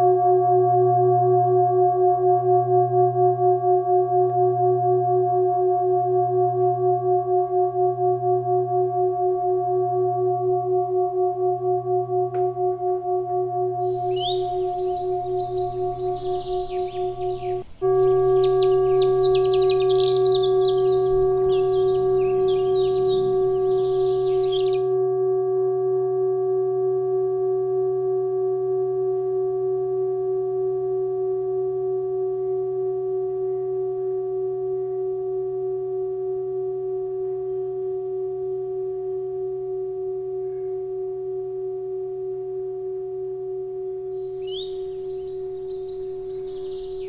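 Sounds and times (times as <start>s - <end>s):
singing bowl ringing: 9.8s - 29.6s, 44.2s - 47.0s
birds chirping: 13.8s - 25.0s, 44.2s - 47.0s
low hum: 13.9s - 24.9s.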